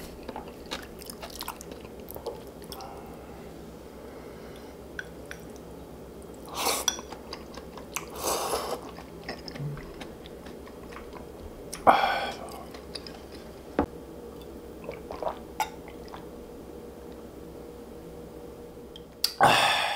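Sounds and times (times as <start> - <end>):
person chewing food: 0.0 - 3.2, 5.0 - 13.8, 14.4 - 16.3.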